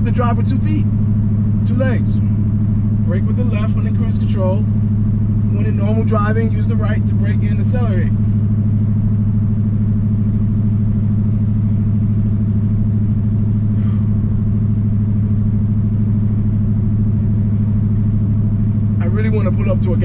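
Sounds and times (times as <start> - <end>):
car engine droning at speed: 0.0 - 20.0.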